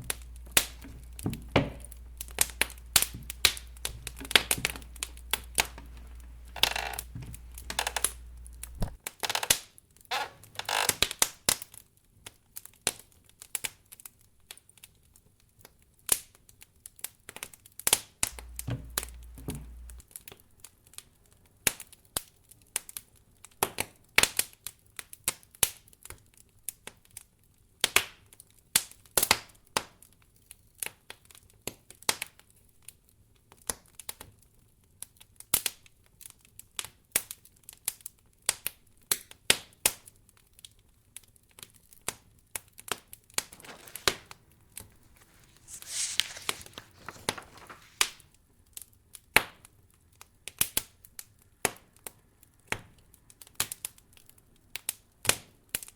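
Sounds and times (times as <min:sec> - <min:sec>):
wood fire crackling: 0:00.0 - 0:11.2, 0:18.3 - 0:20.0, 0:43.4 - 0:48.4
soft rush: 0:45.0 - 0:48.1.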